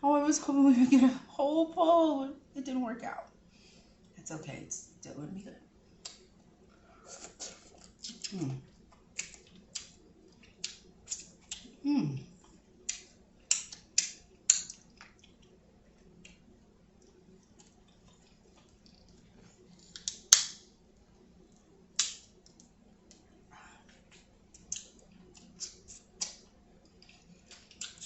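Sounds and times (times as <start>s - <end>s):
wet mouth clicks chewing: 7.1s - 11.7s, 23.9s - 28.0s.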